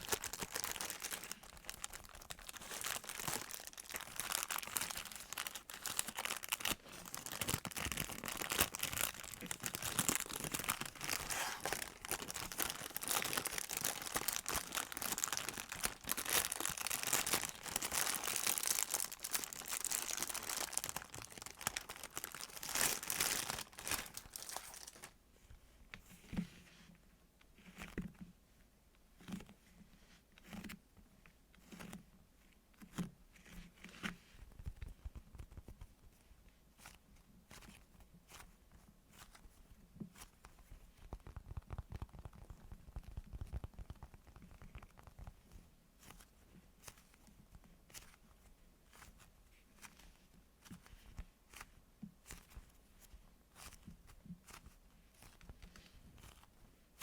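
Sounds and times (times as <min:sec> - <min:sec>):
squishy toys squishing: 0:00.0 - 0:25.1.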